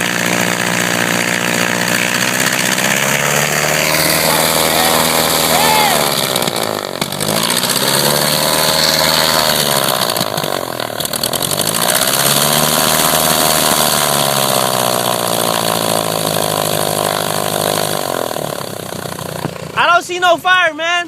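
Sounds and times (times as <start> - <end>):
airplane engine and propeller revving: 0.0 - 20.1
people talking: 4.2 - 6.1, 19.8 - 21.0.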